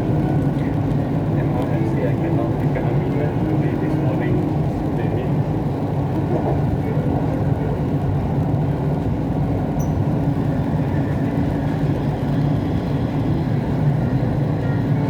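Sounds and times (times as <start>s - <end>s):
metro train rumble: 0.0s - 15.0s.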